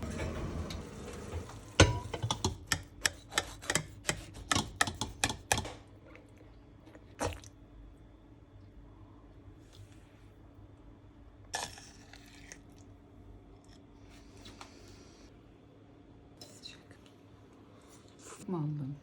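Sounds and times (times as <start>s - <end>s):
metal utensil tapping dishware: 1.8s - 5.8s.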